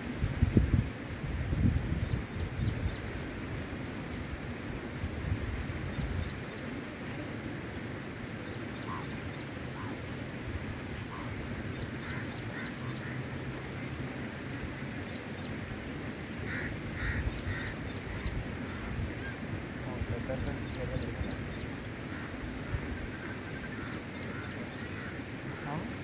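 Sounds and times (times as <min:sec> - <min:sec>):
outdoor background noise: 0:00.0 - 0:26.0
birds chirping: 0:01.9 - 0:04.0, 0:05.8 - 0:07.2, 0:08.2 - 0:26.0
harsh bird calls: 0:08.4 - 0:10.0, 0:10.9 - 0:13.8, 0:16.3 - 0:26.0.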